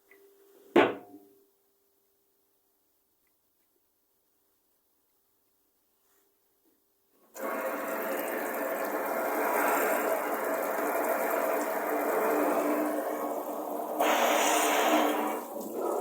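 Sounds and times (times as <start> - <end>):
faucet water pouring into sink: 7.4 - 16.0.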